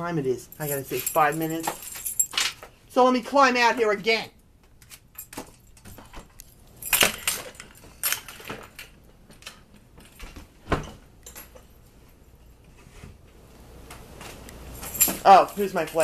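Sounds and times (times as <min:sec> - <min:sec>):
knocks and clinks of small objects: 0:00.5 - 0:02.8, 0:04.7 - 0:12.5, 0:14.7 - 0:16.0.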